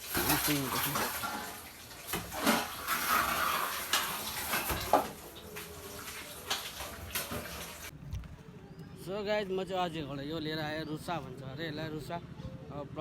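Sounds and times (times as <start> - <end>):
metal tools scraping in mortar: 0.1 - 5.3.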